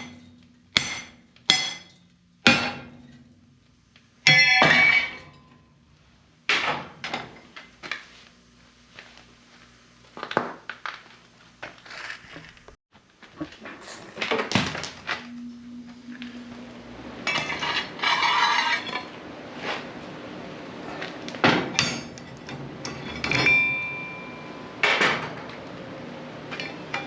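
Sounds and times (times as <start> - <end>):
steel parts clanking on metal: 4.3 - 5.6, 21.6 - 25.6
metal scraping: 13.6 - 25.5
short metallic ring: 23.1 - 25.2.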